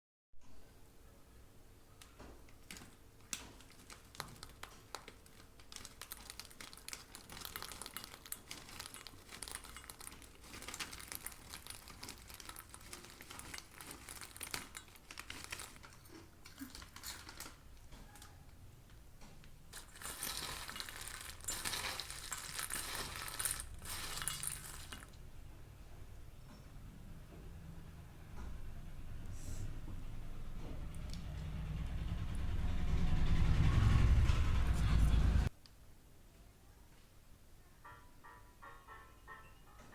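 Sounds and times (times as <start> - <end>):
snack packaging crinkling: 2.0 - 18.4, 19.8 - 25.2.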